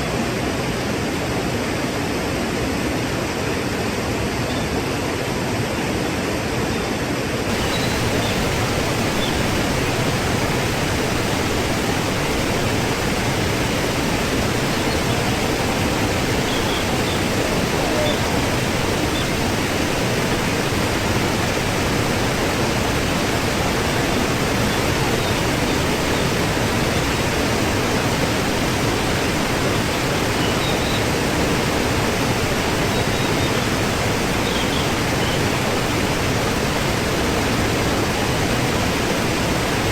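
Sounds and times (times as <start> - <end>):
waterfall rushing: 7.4 - 39.9
faint high chirps: 7.5 - 10.0, 14.5 - 18.4.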